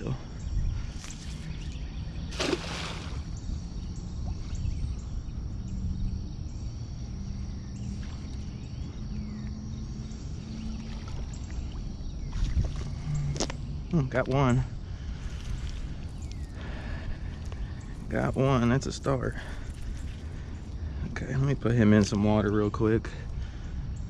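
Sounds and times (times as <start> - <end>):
low rumble of wind and water: 0.0 - 24.0
water splash: 2.3 - 3.4.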